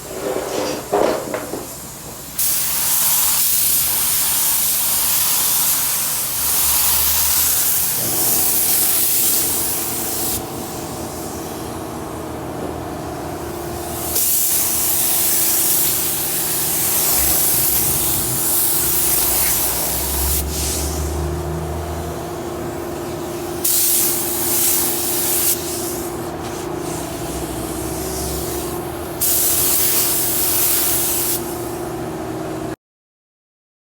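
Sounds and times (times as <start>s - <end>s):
paint spray gun hissing: 0.9s - 11.8s, 13.6s - 21.3s, 22.2s - 31.8s
steady hum: 6.4s - 30.4s.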